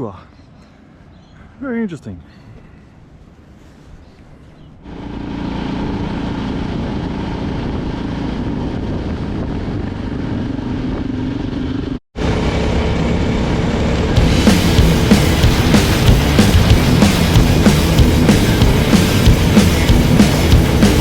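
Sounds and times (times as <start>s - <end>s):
motorcycle engine running: 4.8s - 21.0s.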